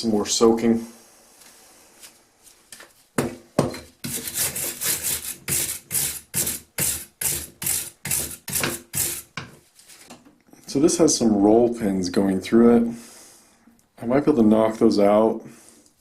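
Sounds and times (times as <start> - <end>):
scrubbing strokes on metal: 4.0 - 9.5.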